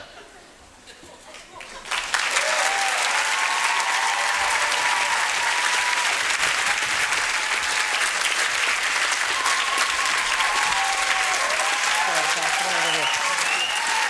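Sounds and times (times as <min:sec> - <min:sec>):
audience applauding: 0:01.5 - 0:14.0
voices calling out: 0:12.0 - 0:14.0.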